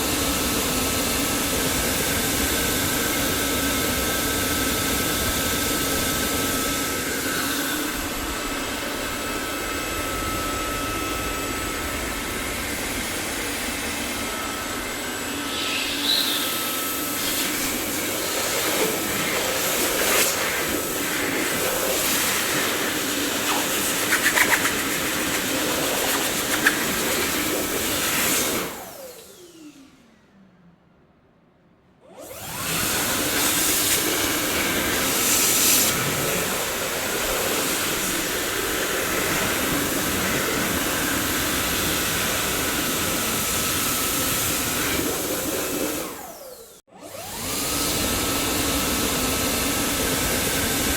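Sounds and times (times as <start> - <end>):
vacuum cleaner running: 0.0 - 30.3, 32.0 - 50.9
motor whine spinning down: 6.5 - 28.0.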